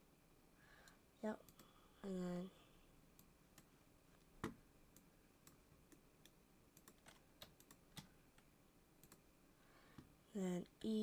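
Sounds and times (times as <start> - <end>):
computer keyboard clicks: 5.4 - 8.1, 9.0 - 9.2.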